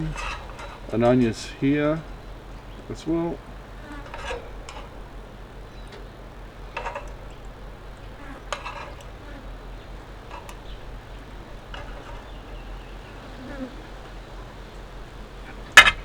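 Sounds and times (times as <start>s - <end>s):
steady low hum: 0.0s - 16.0s
tongs clicking and tapping: 5.8s - 9.2s, 9.8s - 12.4s.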